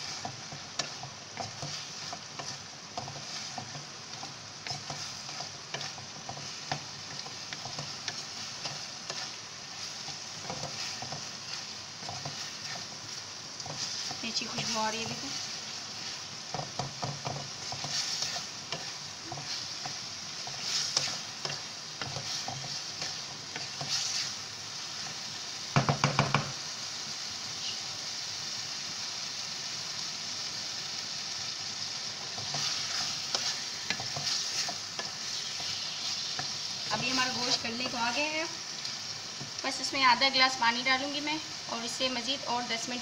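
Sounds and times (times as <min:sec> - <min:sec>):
wooden spatula scraping and stirring: 0:00.0 - 0:26.0, 0:32.0 - 0:40.3
food sizzling in a pan: 0:00.0 - 0:43.0.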